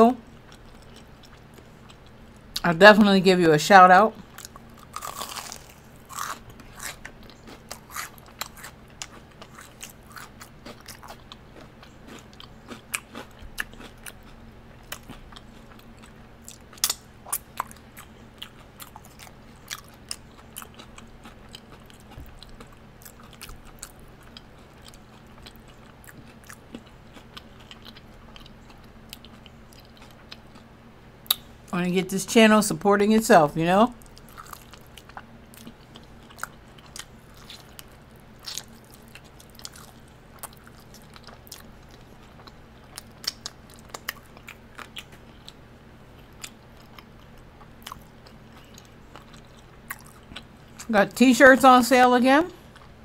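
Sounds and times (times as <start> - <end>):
crunchy chewing: 0.3 - 2.6, 4.2 - 31.5, 34.0 - 50.9.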